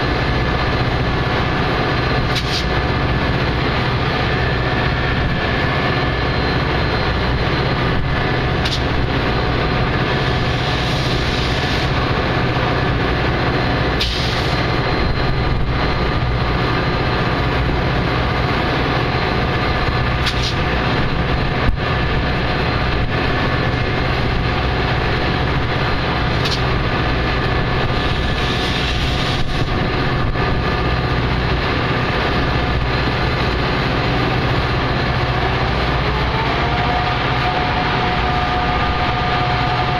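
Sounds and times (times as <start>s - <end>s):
diesel locomotive idling: 0.0s - 39.9s
sharp click: 20.2s - 20.6s, 26.4s - 26.7s.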